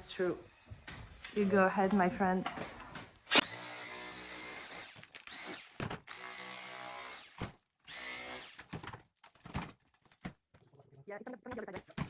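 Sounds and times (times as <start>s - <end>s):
electric chisel hammer buzzing: 3.3s - 8.8s.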